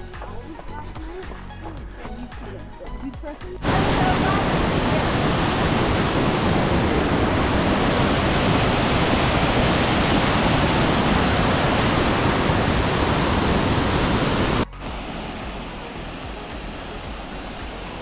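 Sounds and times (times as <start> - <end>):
rushing water roar: 3.6 - 18.0.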